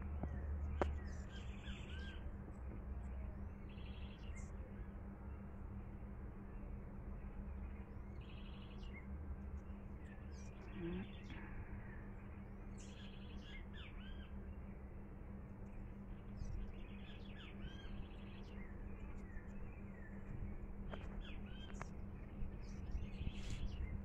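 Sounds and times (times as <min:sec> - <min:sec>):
small birds chirping: 0:00.0 - 0:05.6, 0:06.5 - 0:14.8, 0:15.4 - 0:24.0
steady low hum: 0:00.0 - 0:24.0.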